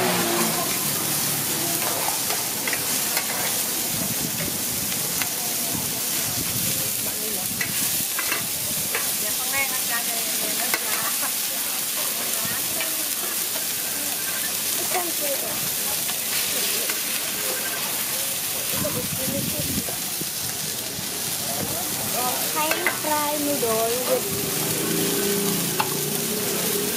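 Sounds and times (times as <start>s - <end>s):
food sizzling on iron pan: 0.0s - 26.9s.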